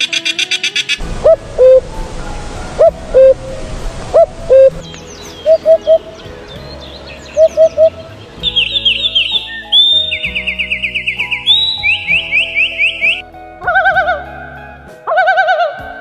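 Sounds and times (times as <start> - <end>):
fast high sweeping bird chirps: 7.3 - 13.2.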